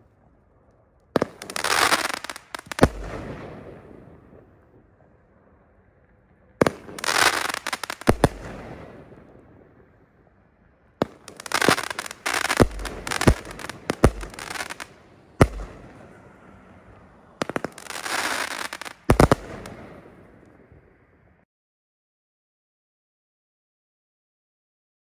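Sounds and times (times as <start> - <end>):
firework crackling: 1.2 - 4.7, 6.6 - 10.0, 11.0 - 20.7
firework reports: 1.2 - 21.4
firework bang: 11.0 - 16.0.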